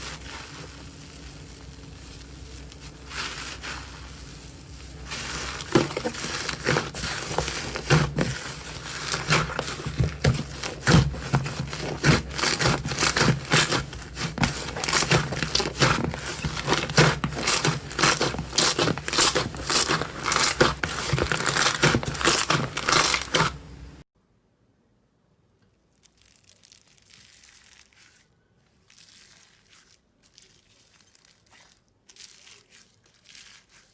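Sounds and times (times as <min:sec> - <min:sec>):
slime crackling and popping: 0:00.0 - 0:23.6.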